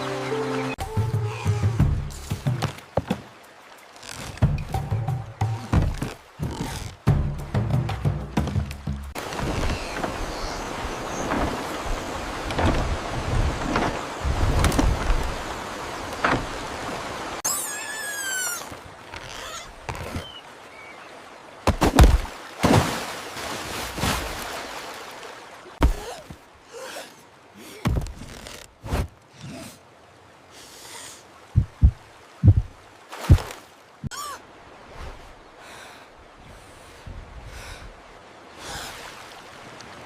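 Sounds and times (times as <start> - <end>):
warbling animal call: 17.4 - 20.4.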